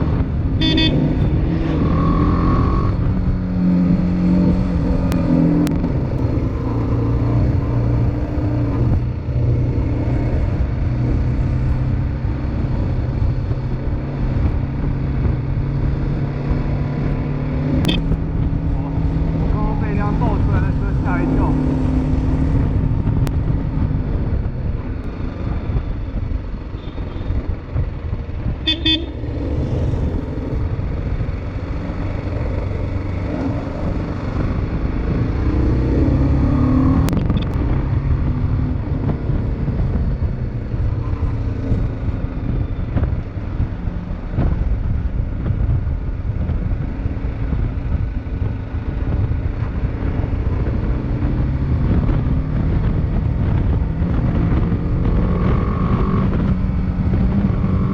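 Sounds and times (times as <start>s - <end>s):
motorcycle engine rumble: 0.0s - 57.9s
wind on microphone: 0.0s - 57.9s
vehicle horn toot: 0.6s - 1.0s, 28.6s - 29.2s.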